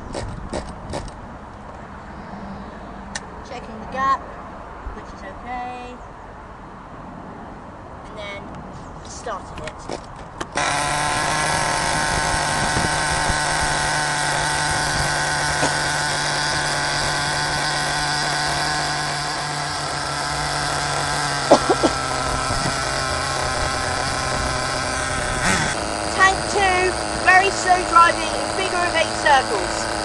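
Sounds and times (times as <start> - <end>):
small nitro engine buzzing: 0.0 - 1.2, 9.9 - 30.0.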